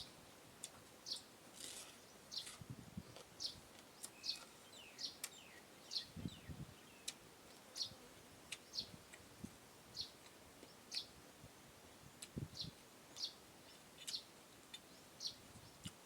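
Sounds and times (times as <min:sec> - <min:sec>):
bird chirping: 0:01.0 - 0:02.6, 0:03.4 - 0:09.2, 0:09.9 - 0:11.2, 0:12.1 - 0:16.0.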